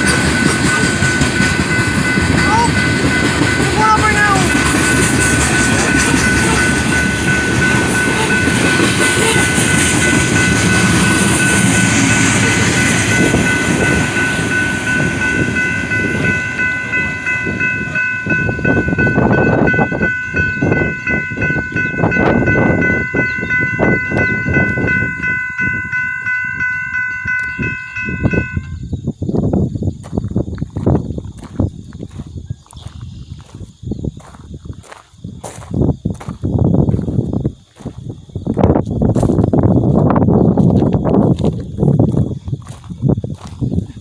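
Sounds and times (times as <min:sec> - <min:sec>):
wheels clacking over rail joints: 0:00.0 - 0:28.6
high ringing crossing bell: 0:00.0 - 0:29.0
train rumbling past: 0:00.0 - 0:29.0.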